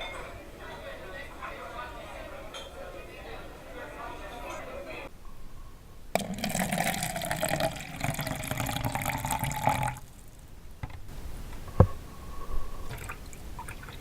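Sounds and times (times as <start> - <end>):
water running: 6.2 - 10.5, 12.7 - 14.0.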